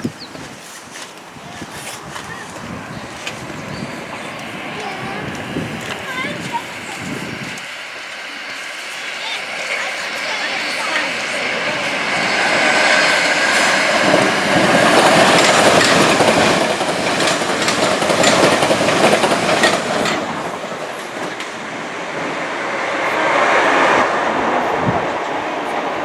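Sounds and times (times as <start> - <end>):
train wheels clattering: 0.1 - 22.6.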